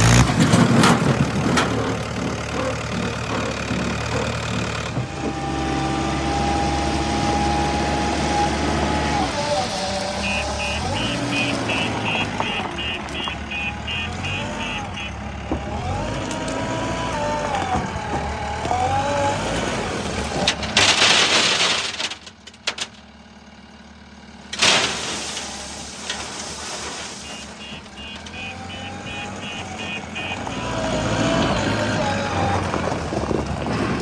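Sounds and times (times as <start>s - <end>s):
diesel engines running: 0.0s - 34.0s
reversing alarm beeping: 10.2s - 16.0s, 27.2s - 31.4s.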